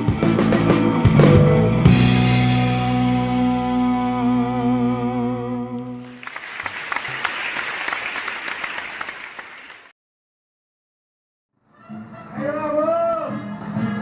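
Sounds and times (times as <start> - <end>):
music with long wavering notes: 0.0 - 6.2
applause: 6.0 - 9.9.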